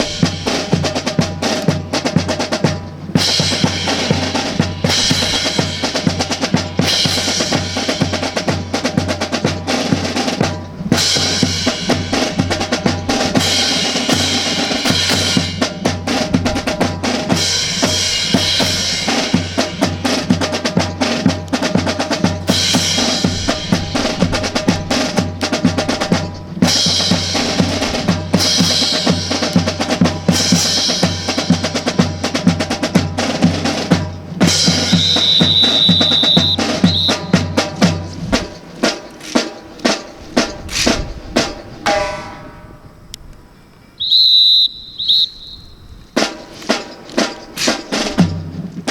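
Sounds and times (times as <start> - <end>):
bass drum: 0.0 - 38.8
snare drum marching cadence: 0.0 - 42.6, 44.1 - 48.9.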